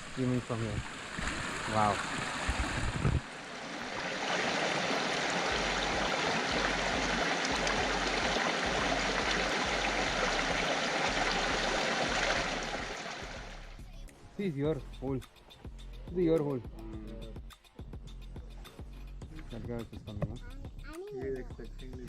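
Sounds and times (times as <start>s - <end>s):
stream gurgling and splashing: 0.0s - 13.8s.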